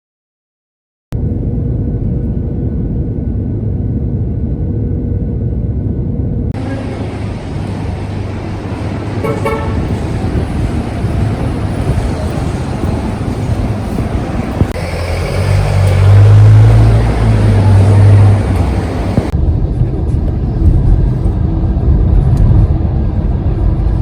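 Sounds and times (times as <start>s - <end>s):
road traffic: 1.2s - 24.0s
vehicle engine running: 6.6s - 24.0s
car horn toot: 9.2s - 10.2s.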